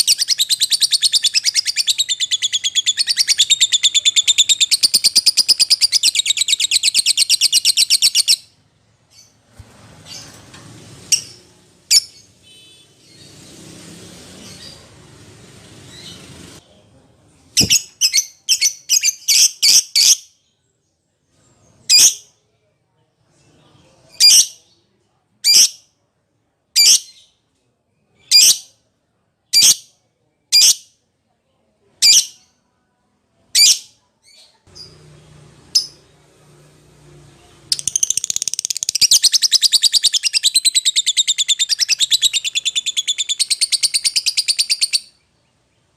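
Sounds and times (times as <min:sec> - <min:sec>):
sharp high-pitched bird calls: 0:00.0 - 0:08.5, 0:37.7 - 0:45.3
lovebird chattering: 0:37.8 - 0:45.1.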